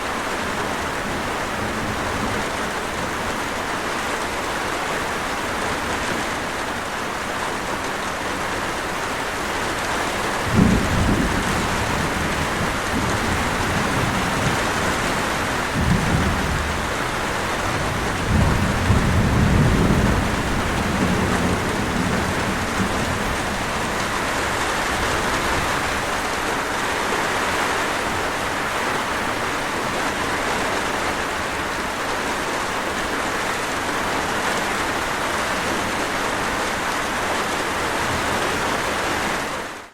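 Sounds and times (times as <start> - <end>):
heavy rain falling: 0.0 - 39.9
thunder crack and rumbles: 10.4 - 26.3.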